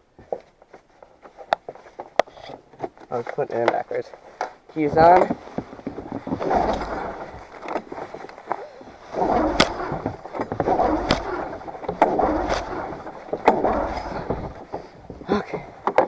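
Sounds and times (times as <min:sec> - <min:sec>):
recoil starter rope pulled: 0:04.8 - 0:16.0
engine turning over noisily: 0:06.2 - 0:15.3
starter mechanism clicks: 0:06.4 - 0:14.9.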